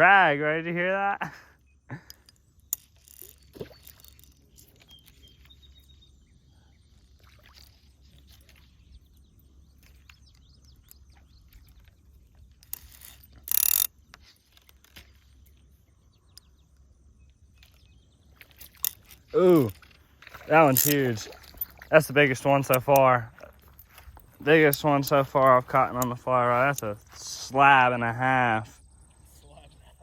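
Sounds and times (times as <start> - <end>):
small clicks and rustles: 2.1 - 6.0, 6.9 - 21.9.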